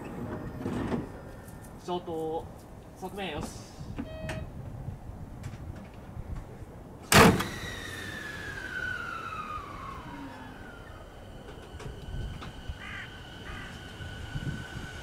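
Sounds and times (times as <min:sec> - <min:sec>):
train whine falling in pitch: 0:07.4 - 0:15.0.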